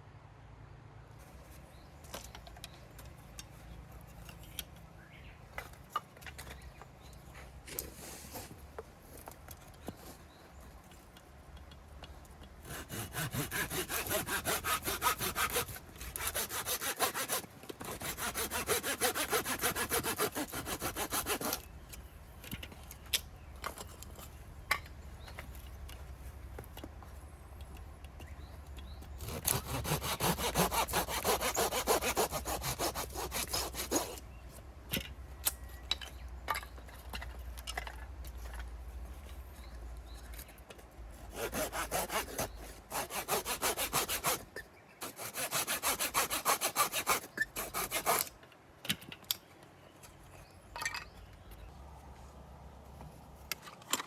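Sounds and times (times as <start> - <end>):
hand saw cutting firewood: 12.4 - 22.1, 28.3 - 34.3, 41.2 - 48.4.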